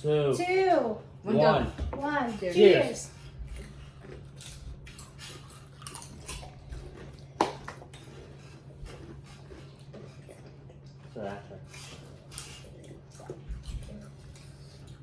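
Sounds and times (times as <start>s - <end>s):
people crunching chips: 3.0s - 15.0s.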